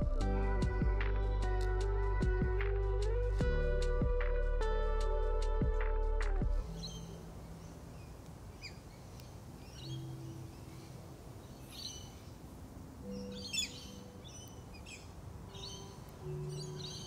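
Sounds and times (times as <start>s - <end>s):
bird chirps and calls: 6.6s - 12.4s, 13.0s - 17.0s.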